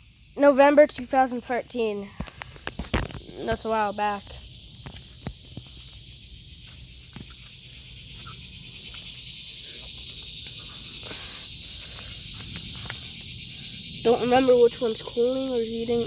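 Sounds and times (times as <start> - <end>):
insects buzzing: 0.0 - 16.0
light footsteps: 2.3 - 9.1, 9.8 - 13.4.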